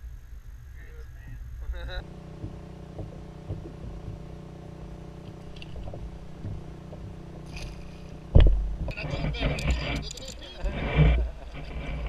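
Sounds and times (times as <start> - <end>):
motorboat engine running: 1.2 - 12.0
light knocks: 2.4 - 4.3.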